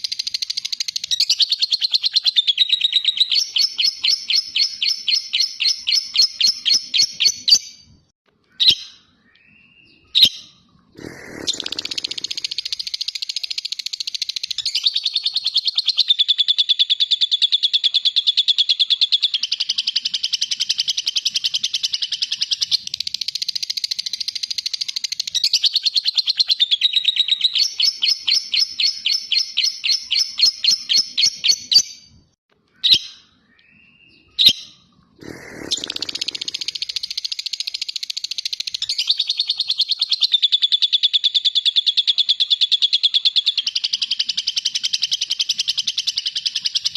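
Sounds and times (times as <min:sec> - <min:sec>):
lovebird chattering trill: 0:10.2 - 0:31.9, 0:34.4 - 0:46.9.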